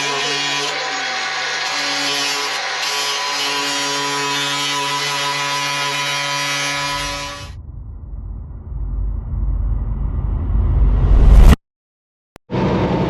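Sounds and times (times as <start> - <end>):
high power tool whine: 0.0 - 5.2
vehicle engine rumble: 7.6 - 11.6.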